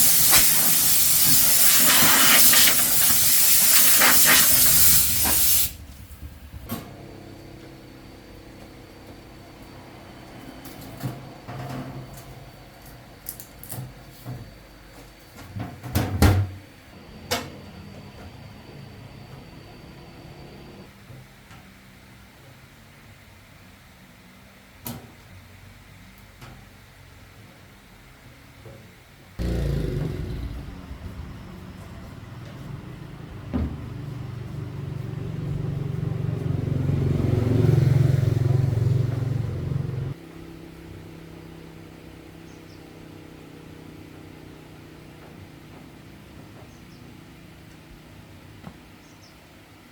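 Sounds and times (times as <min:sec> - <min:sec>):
motor running with pulsing rumble: 0:05.1 - 0:09.7, 0:29.4 - 0:37.4.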